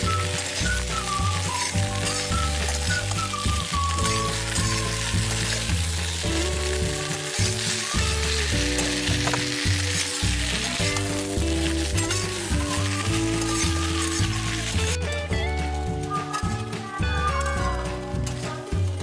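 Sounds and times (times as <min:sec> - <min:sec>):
metal spatula stirring in wok: 0:00.0 - 0:15.0
background music with bass line: 0:00.0 - 0:19.0
vegetables sizzling in oil: 0:00.0 - 0:19.0.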